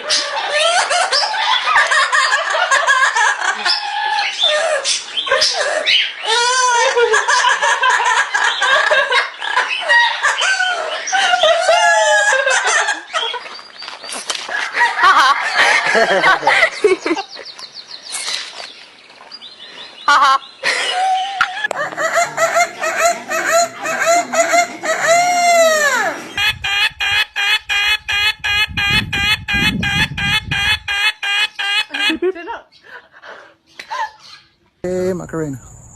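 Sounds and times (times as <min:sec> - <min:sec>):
chicken clucking: 0:21.4 - 0:32.2
rooster crowing: 0:21.7 - 0:30.9.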